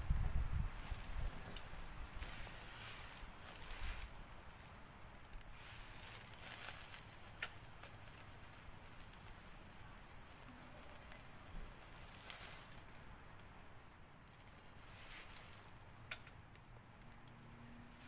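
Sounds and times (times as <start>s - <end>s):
faint rain patter: 0.0s - 18.0s
wood fire crackling: 0.0s - 18.0s.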